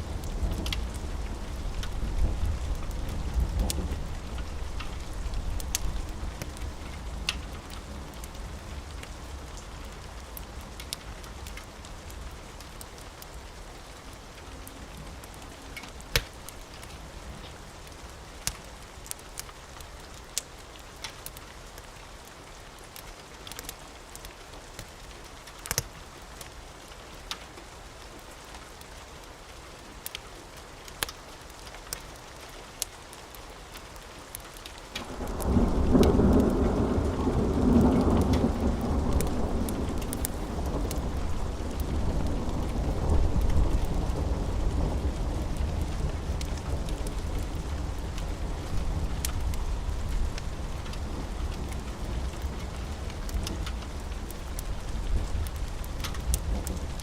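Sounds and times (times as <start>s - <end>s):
rain hiss: 0.0s - 57.0s
wood fire crackling: 0.0s - 57.0s
thunder rumble: 35.0s - 57.0s.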